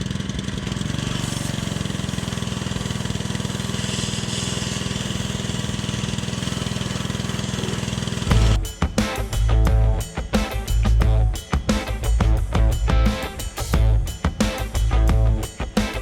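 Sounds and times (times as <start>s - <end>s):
pressure washer engine running: 0.0s - 16.0s
hissing water and sand spray: 0.7s - 8.3s.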